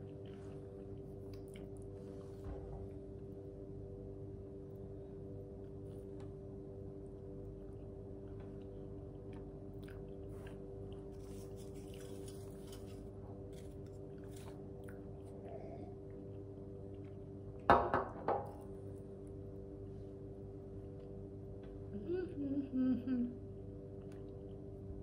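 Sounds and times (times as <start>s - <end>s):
person chewing: 0.0s - 2.3s, 7.4s - 17.7s
steady low hum: 0.0s - 25.0s.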